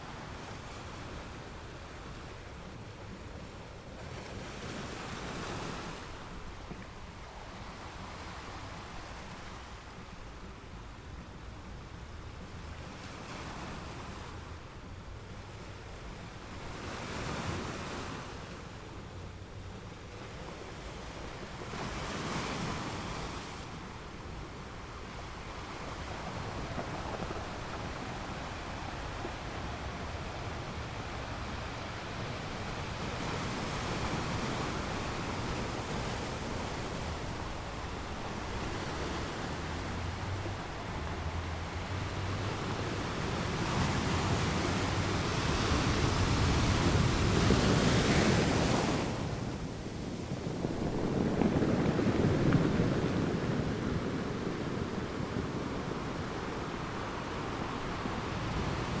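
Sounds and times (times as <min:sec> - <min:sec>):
ocean waves breaking: 0:20.8 - 0:59.0.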